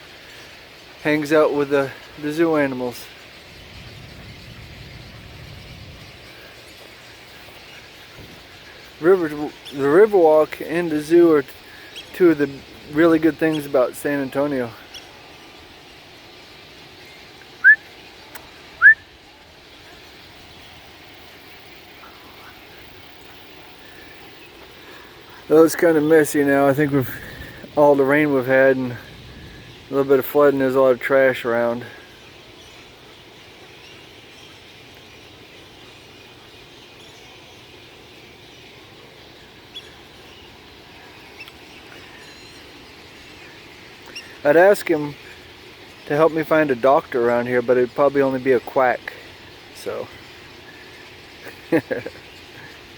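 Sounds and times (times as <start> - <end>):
faint bird chirps: 0.0 - 52.9
outdoor background hum: 0.0 - 52.9
rising whistles: 17.6 - 18.0, 18.7 - 19.2.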